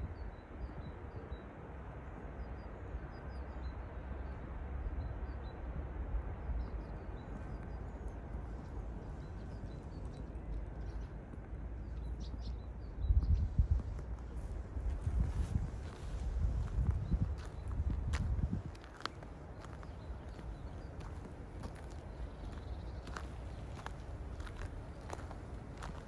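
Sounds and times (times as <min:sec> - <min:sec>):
small birds chirping: 0:07.0 - 0:26.0
footsteps on snow: 0:13.6 - 0:26.0.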